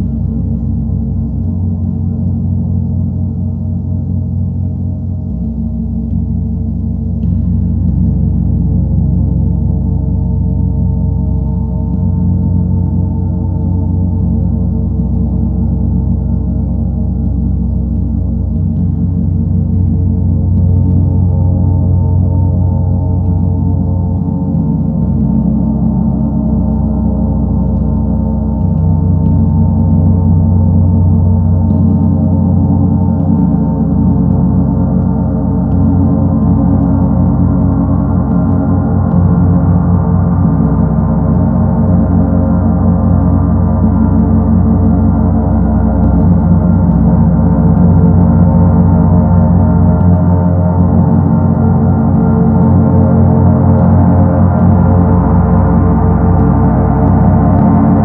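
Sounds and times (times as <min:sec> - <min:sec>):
gong with deep low drone: 0:00.0 - 0:58.0.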